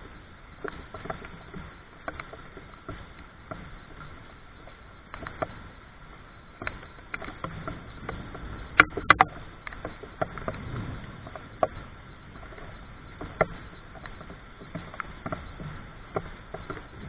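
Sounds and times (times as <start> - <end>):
raindrops tapping: 6.6 - 17.0.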